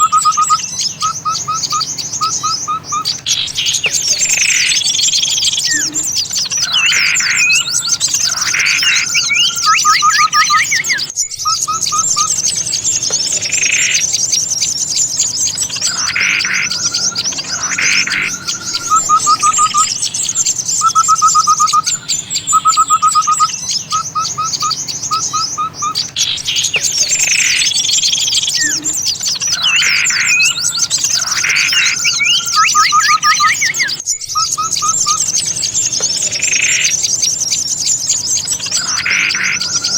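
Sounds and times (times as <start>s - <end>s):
rapid bird trills: 0.0s - 39.9s
songbirds chattering and calling: 0.0s - 39.9s.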